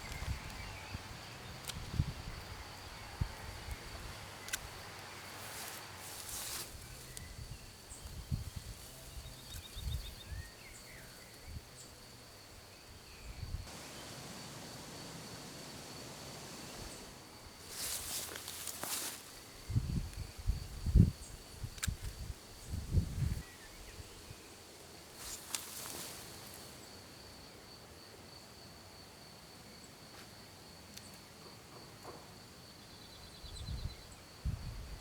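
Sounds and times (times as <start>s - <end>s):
high-pitched insect trill: 0.0s - 24.5s
rustling: 3.8s - 7.3s, 13.7s - 19.5s, 25.2s - 26.8s.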